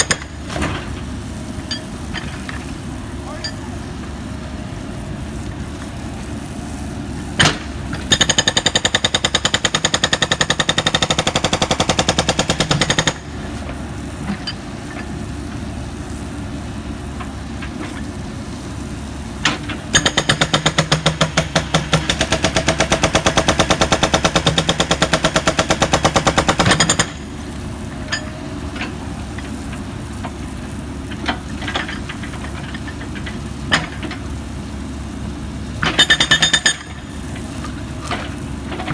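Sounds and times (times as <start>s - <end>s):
jackhammer hammering: 0.0s - 0.5s, 7.4s - 13.4s, 19.9s - 27.3s, 35.8s - 37.1s.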